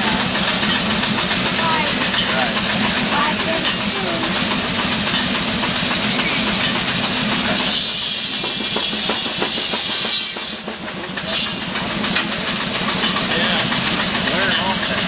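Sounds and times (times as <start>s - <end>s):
loud high hiss: 0.0s - 11.9s
sawmill machinery knocking: 0.0s - 15.0s.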